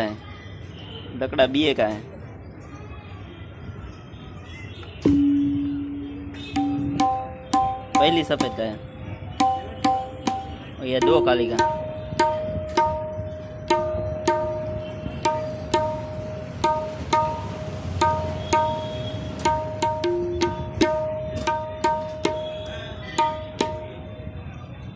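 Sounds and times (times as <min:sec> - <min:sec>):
tabla drum strokes: 0:05.1 - 0:24.1.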